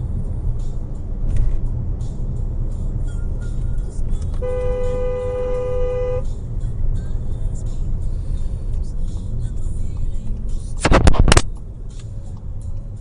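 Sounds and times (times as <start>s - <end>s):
car road and engine rumble: 0.0s - 13.0s
long car horn blast: 4.4s - 6.3s.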